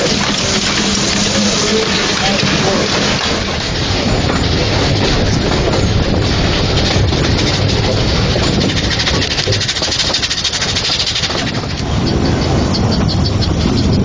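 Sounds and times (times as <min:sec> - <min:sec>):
rapid fine ticks: 0:00.0 - 0:14.0
steam locomotive hissing and rumbling: 0:00.0 - 0:14.0.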